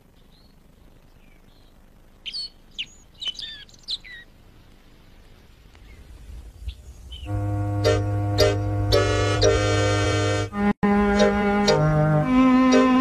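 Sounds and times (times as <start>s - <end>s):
birds chirping: 0.0s - 13.0s
low rumble: 5.5s - 10.6s.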